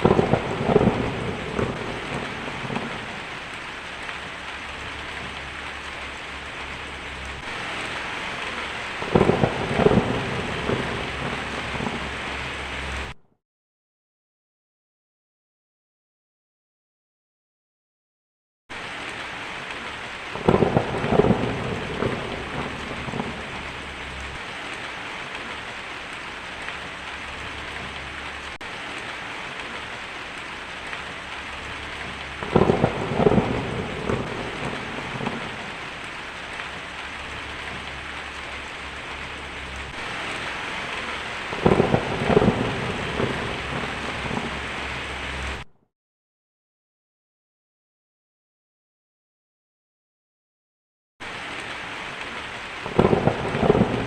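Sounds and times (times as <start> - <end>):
heavy rain: 0.0 - 13.2, 18.7 - 45.7, 51.2 - 54.0
thunder cracking and rumbling: 0.0 - 13.2, 18.8 - 45.7, 52.8 - 54.0.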